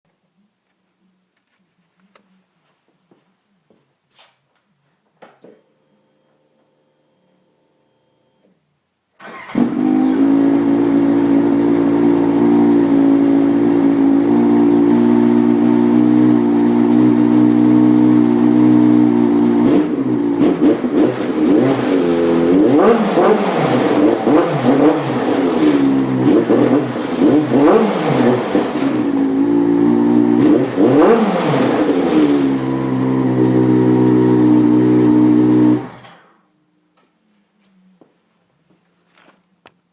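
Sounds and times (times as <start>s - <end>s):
snowmobile engine revving: 9.2s - 36.1s.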